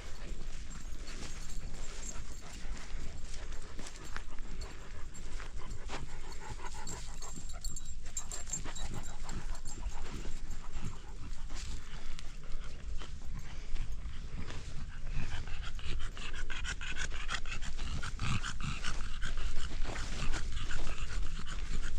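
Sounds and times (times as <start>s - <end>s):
animal panting: 0.0s - 21.9s.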